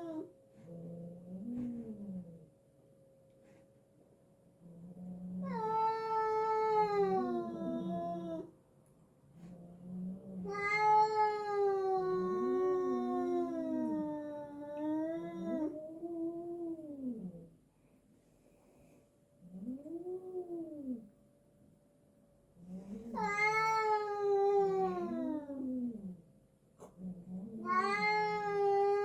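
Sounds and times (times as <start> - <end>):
cat growls: 0.0 - 2.5, 4.6 - 8.5, 9.3 - 17.6, 19.4 - 21.1, 22.6 - 29.0
cats yowling: 5.4 - 8.5, 10.4 - 17.4, 22.9 - 25.9, 27.5 - 29.0.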